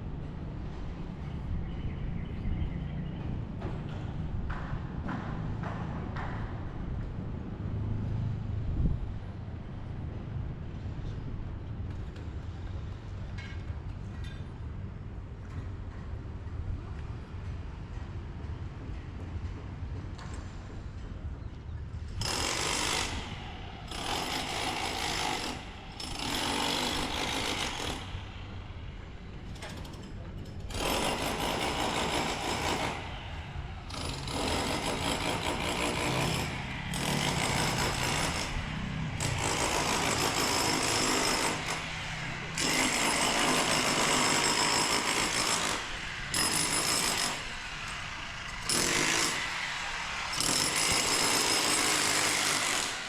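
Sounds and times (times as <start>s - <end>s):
power tool running: 22.2s - 28.4s, 33.9s - 53.0s.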